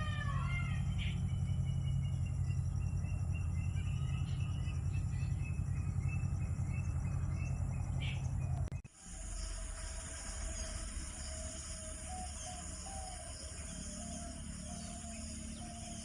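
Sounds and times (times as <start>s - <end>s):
steady low rumble: 0.0s - 12.4s
small birds chirping: 0.0s - 16.0s.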